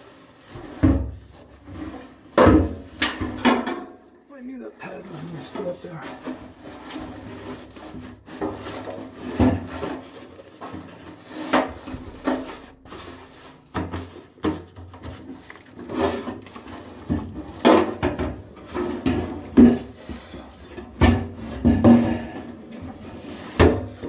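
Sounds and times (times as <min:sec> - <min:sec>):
tools and parts knocking and clunking: 0:02.4 - 0:04.0, 0:13.8 - 0:24.0.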